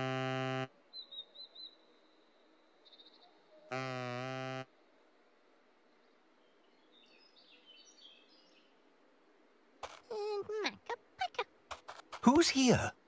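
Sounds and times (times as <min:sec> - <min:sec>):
faint twittering chirps: 0:00.7 - 0:04.0, 0:04.6 - 0:11.6.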